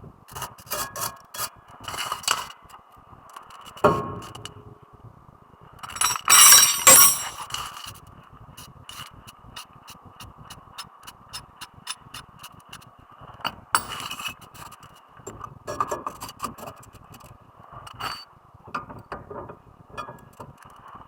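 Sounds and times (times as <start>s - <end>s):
loud metal clank: 5.9s - 7.4s
metal tools clinking: 5.9s - 7.8s.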